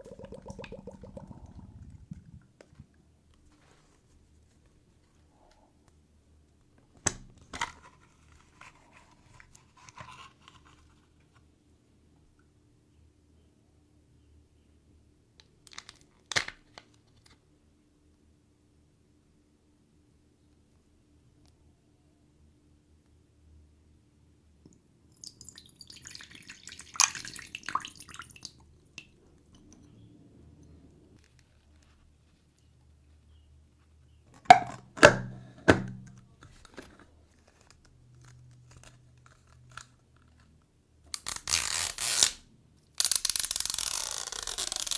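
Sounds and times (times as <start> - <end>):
liquid dripping and splashing: 0.0 - 2.4, 25.2 - 29.1.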